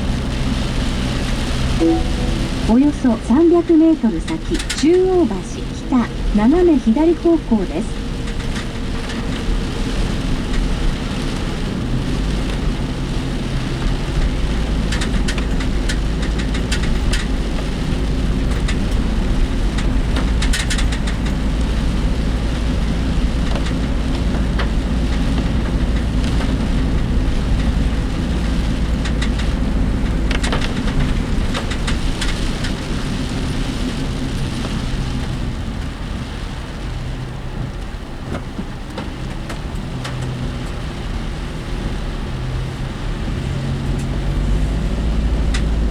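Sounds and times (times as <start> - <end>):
engine and road rumble: 0.0 - 45.9
rain on vehicle body: 0.0 - 45.9
vehicle rattles: 0.0 - 45.9.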